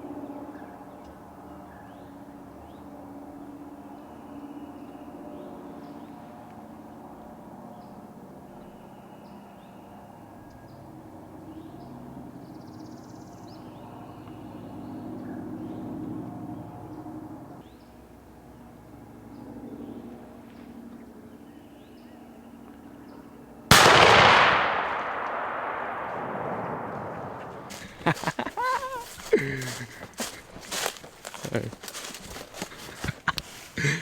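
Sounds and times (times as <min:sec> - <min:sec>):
engine-like hum: 0:00.0 - 0:23.7
small birds chirping: 0:27.2 - 0:34.0.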